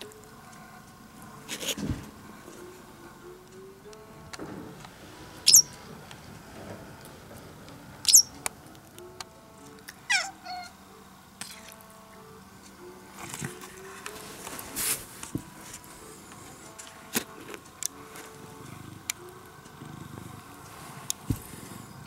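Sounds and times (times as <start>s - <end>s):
soft background music: 0.0s - 22.0s
bird chirps: 5.4s - 5.8s, 8.0s - 8.4s.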